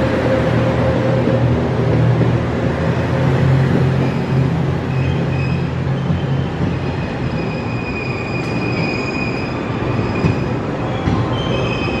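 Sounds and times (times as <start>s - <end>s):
diesel train rumbling: 0.0s - 12.0s
high thin wheel squeal: 4.1s - 10.4s.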